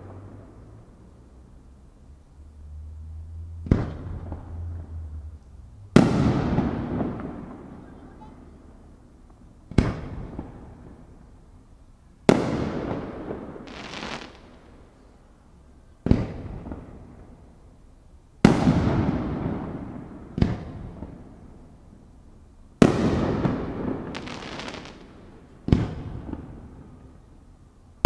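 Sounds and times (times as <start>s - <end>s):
firework shells booming: 3.6s - 4.6s, 5.9s - 7.9s, 18.4s - 21.2s, 22.8s - 26.7s.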